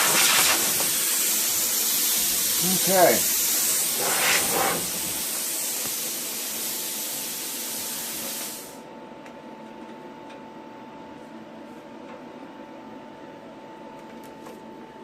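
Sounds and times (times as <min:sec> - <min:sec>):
plasma cutter hissing: 0:00.0 - 0:08.8.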